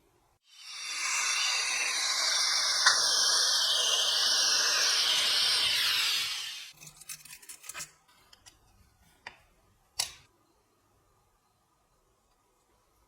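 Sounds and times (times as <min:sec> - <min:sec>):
steady hiss: 0:00.5 - 0:06.7.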